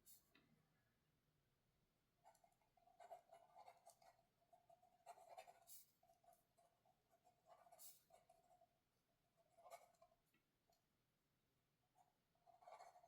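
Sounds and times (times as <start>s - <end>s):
pencil writing on paper: 2.2s - 10.3s, 11.9s - 13.0s.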